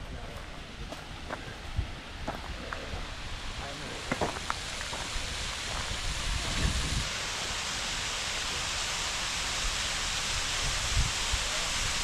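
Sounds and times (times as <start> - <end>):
waterfall rushing: 3.1 - 12.0.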